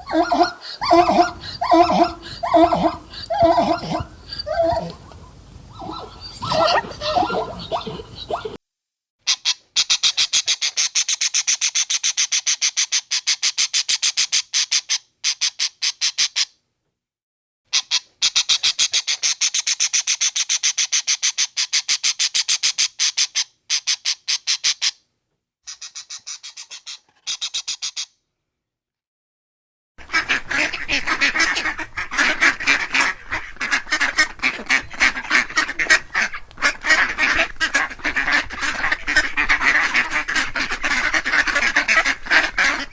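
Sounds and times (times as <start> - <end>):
ducks or geese honking: 0.0 - 8.6, 30.0 - 42.9
rapid high short animal calls: 0.0 - 8.6, 25.7 - 28.2.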